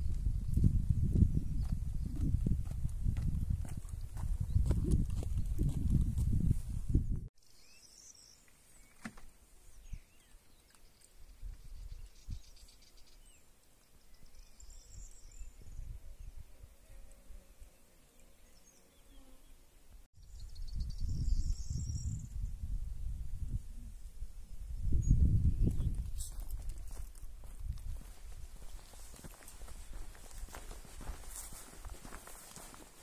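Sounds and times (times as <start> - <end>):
wind rumble on microphone: 0.0 - 7.3, 11.2 - 12.6, 14.7 - 16.7, 20.2 - 32.2
small birds chirping: 7.4 - 17.0, 24.9 - 26.8.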